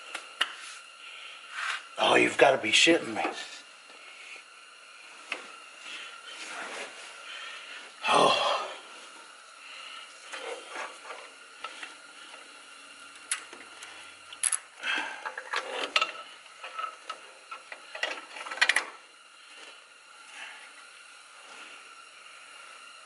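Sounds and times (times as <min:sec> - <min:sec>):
metallic clicks and clinks of tools: 0:14.4 - 0:14.6.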